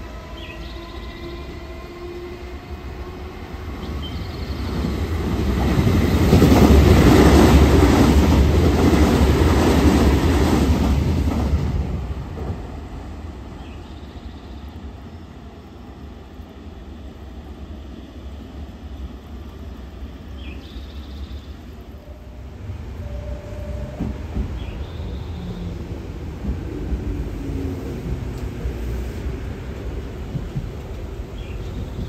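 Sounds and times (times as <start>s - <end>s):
train wheels rumbling and clattering: 1.9s - 14.0s, 22.8s - 32.0s.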